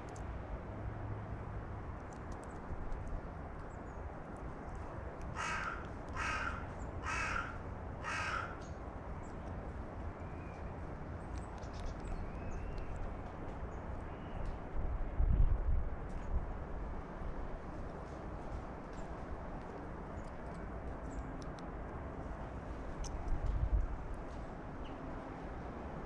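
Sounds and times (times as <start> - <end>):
crow cawing: 5.4 - 8.6.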